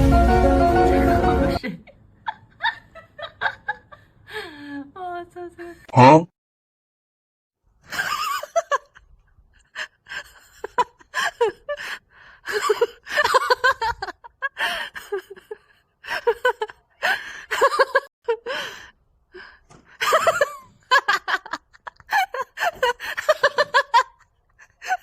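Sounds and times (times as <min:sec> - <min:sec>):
person laughing breathily: 0:09.6 - 0:25.0.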